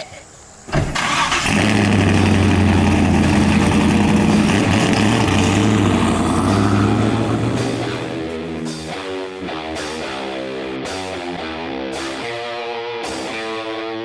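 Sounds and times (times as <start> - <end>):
engine droning: 0.7 - 10.8.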